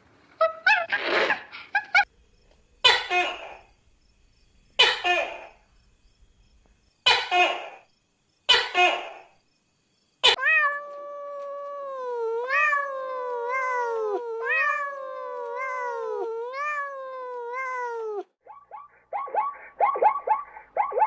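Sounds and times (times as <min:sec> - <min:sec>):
cat yowling: 0:10.2 - 0:18.4.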